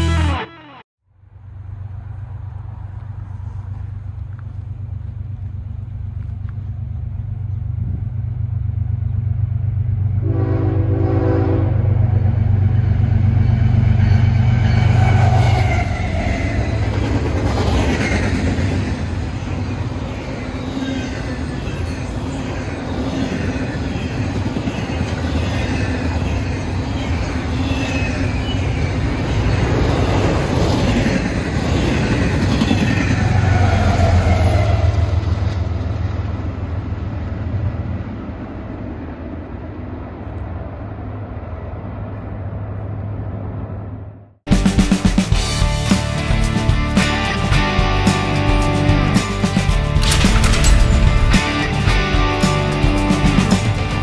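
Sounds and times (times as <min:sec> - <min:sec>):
locomotive engine drone: 0:00.0 - 0:44.2, 0:45.4 - 0:54.0
train horn blast: 0:10.2 - 0:12.0
train cars rolling on steel wheels: 0:12.2 - 0:38.5, 0:47.1 - 0:54.0.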